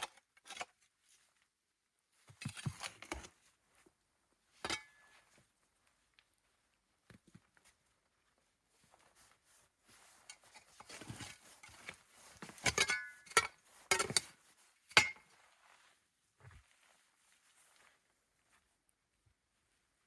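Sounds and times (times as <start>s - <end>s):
soft rustling: 0.9s - 20.0s
clinks and knocks of objects: 10.5s - 15.3s.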